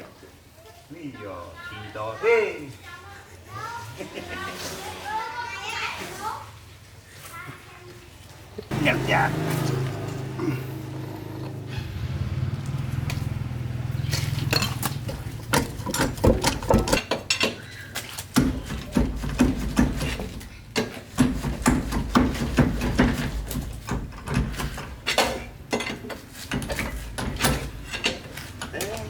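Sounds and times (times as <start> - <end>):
metal tools knocking and clanking: 14.2 - 17.7, 18.4 - 29.0.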